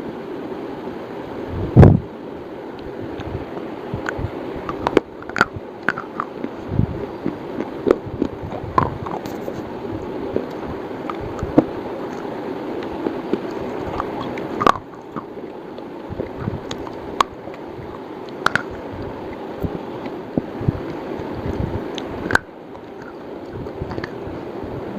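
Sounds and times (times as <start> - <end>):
chewing hard slate: 4.1 - 9.6, 10.3 - 20.2, 22.0 - 24.2.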